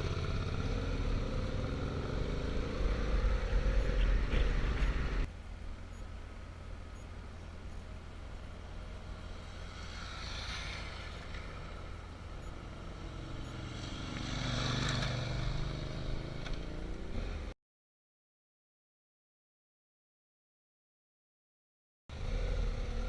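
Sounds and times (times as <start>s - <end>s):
vehicles passing by: 0.0s - 17.6s, 22.1s - 23.0s.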